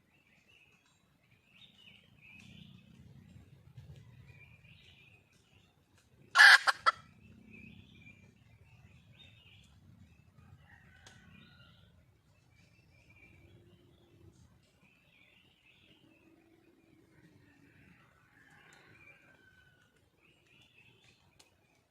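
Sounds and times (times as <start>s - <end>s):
small birds chirping: 0.0s - 21.9s
junglefowl hen call: 6.4s - 7.0s.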